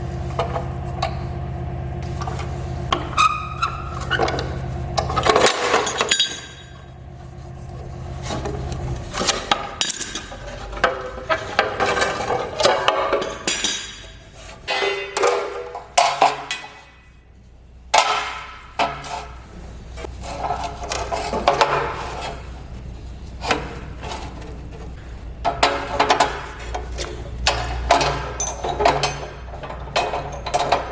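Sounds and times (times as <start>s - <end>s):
low steady hum: 0.0s - 30.9s
clinks and knocks of hand work: 3.7s - 7.0s, 8.2s - 17.2s, 23.4s - 30.9s.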